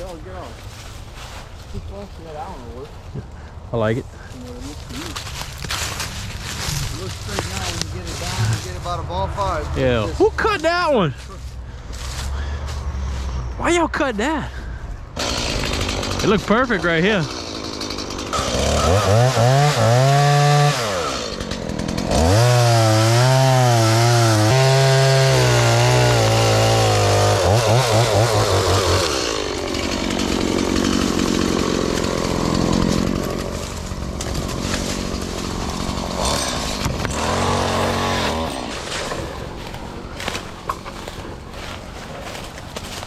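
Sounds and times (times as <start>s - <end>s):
chainsaw cutting wood: 15.2s - 43.0s.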